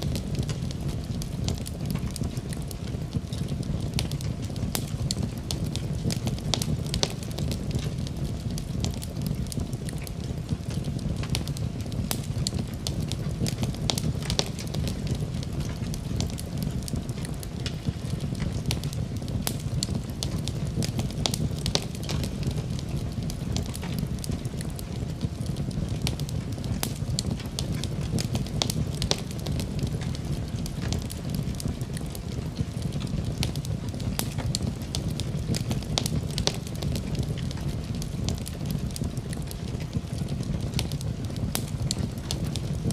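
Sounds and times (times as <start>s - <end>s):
low rumble of fire: 0.0s - 42.9s
wood fire crackling and popping: 0.0s - 42.9s.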